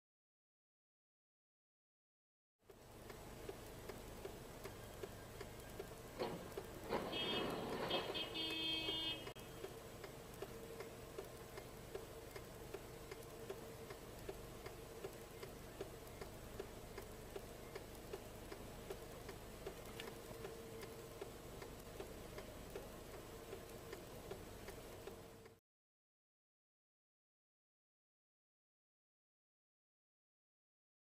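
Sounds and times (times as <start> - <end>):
faint even ticking: 2.7 - 6.8, 9.2 - 25.6
low steady hum: 2.7 - 25.6.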